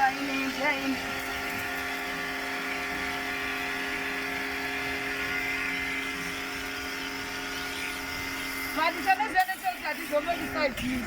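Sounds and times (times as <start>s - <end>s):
car wash motor humming: 0.0s - 11.0s.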